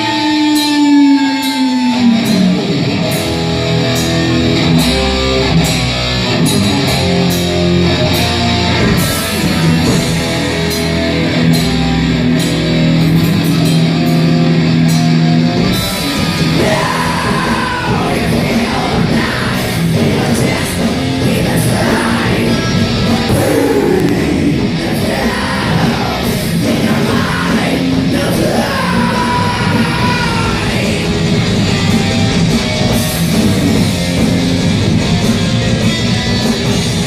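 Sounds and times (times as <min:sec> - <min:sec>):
distorted electric guitar: 0:00.0 - 0:37.0
drums and cymbals: 0:00.0 - 0:37.0
person yelling vocals: 0:16.6 - 0:19.0, 0:23.3 - 0:26.2.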